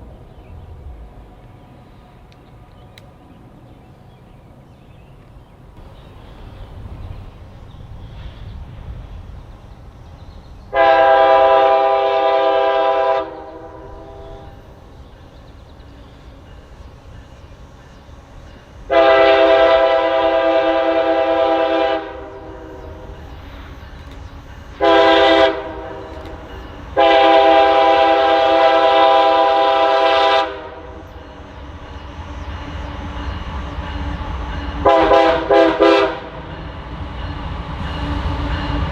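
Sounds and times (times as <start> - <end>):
low rumble of approaching train: 0.0 - 38.9
locomotive air horn blasts: 10.7 - 14.5, 18.9 - 23.0, 24.8 - 26.2, 27.0 - 31.0, 34.8 - 36.4.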